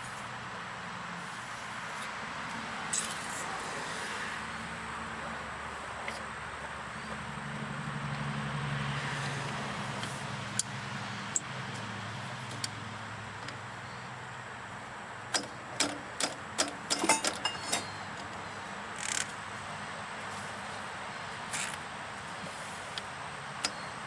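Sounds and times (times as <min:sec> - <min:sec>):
hand tools clinking on metal: 0:15.4 - 0:18.0.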